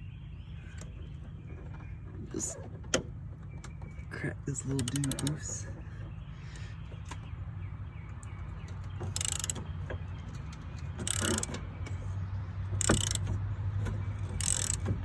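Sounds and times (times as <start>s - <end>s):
bursts of ratcheting: 4.7s - 5.5s, 9.1s - 9.7s, 10.7s - 11.6s, 12.7s - 15.0s
ratchet wrench clicking: 4.8s - 5.3s, 9.2s - 9.6s, 11.0s - 11.6s, 12.8s - 13.3s, 14.3s - 14.9s.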